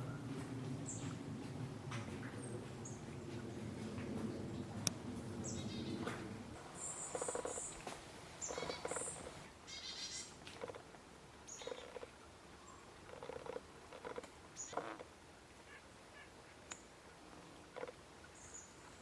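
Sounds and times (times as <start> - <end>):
low rumble: 0.0 - 6.7
wild birds calling: 5.4 - 10.8, 11.5 - 15.0.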